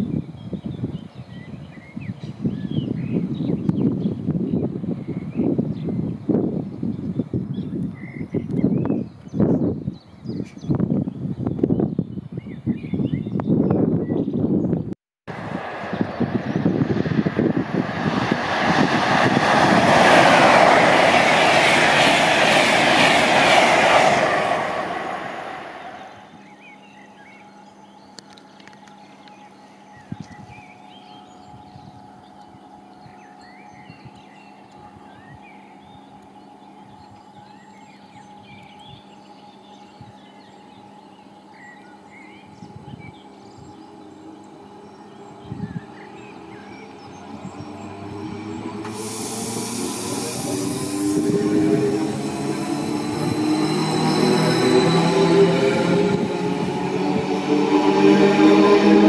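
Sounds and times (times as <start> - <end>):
electric train hum: 13.4 - 59.0
train rushing past: 15.3 - 26.6, 43.8 - 59.0
birds chirping: 15.9 - 59.0.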